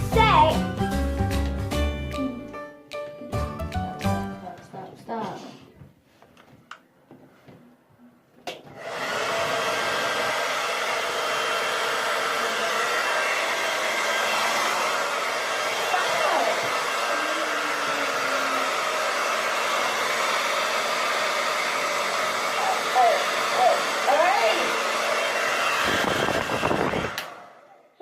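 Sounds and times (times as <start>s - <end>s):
hair dryer blowing: 8.7s - 27.9s
hair dryer switch click: 27.1s - 27.4s.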